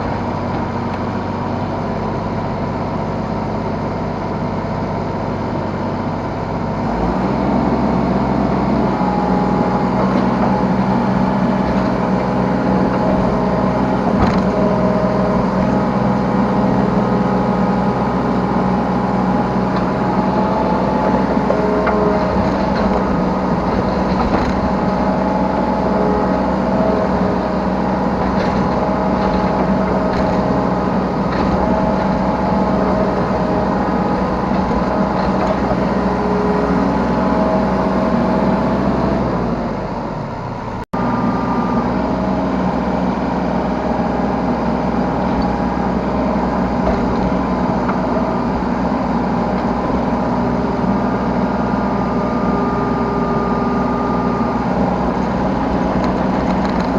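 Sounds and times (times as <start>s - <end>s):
diesel engine running: 0.0s - 56.9s
hydraulics working: 6.6s - 56.9s.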